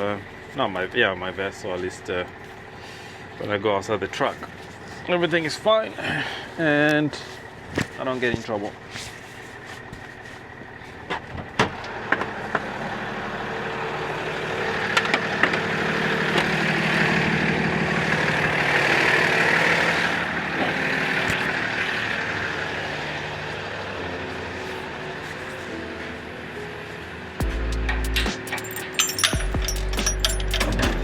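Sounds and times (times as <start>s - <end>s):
truck engine running: 0.0s - 31.0s.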